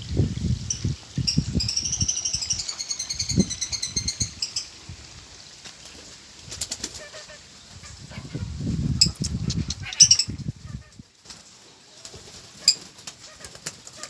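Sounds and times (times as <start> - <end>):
birds twittering: 0.4 - 4.9, 6.8 - 11.0
low pulsing bird calls: 0.6 - 4.8, 6.9 - 11.0.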